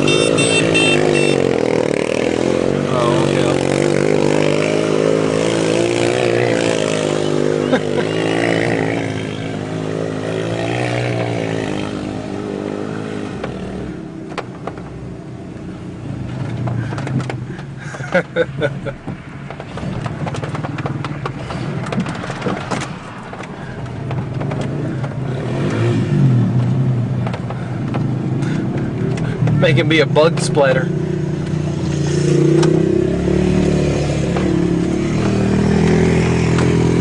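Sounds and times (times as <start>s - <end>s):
off-road vehicle engine revving: 0.0s - 14.9s, 23.6s - 37.0s
sharp knocks and rattles: 14.2s - 15.0s, 16.3s - 29.6s.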